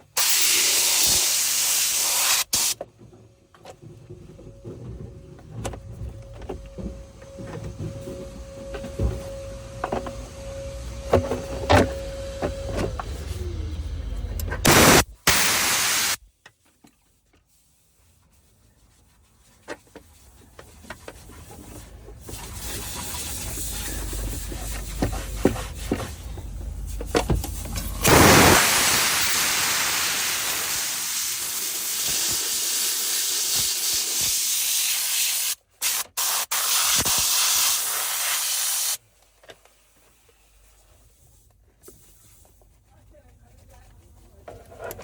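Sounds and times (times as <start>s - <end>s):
pressurised spray hissing: 0.2s - 2.8s, 14.7s - 16.2s, 28.0s - 39.0s.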